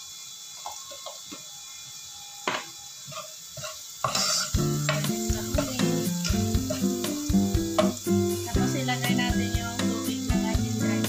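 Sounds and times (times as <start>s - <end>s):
garlic sizzling in hot oil: 0.0s - 11.0s
spatula scraping pot: 3.1s - 7.9s
background music with plucked notes: 4.6s - 11.0s.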